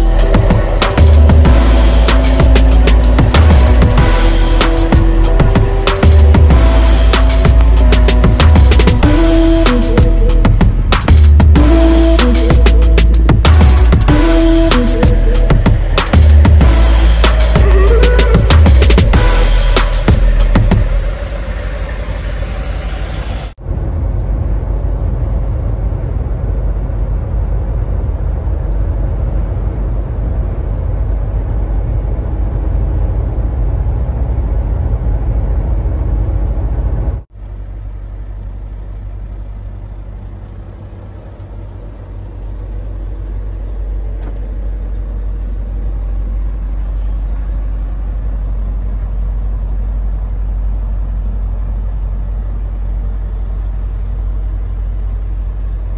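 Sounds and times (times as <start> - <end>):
vehicle engine and road noise: 0.0 - 55.9.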